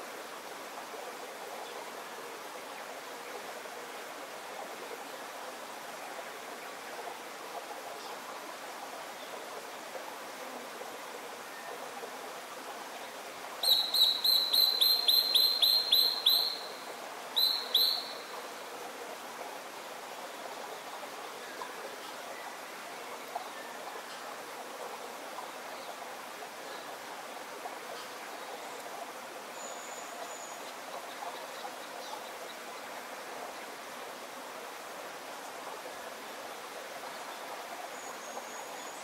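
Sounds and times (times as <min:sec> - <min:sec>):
bird calling sharp notes: 0:13.6 - 0:16.8.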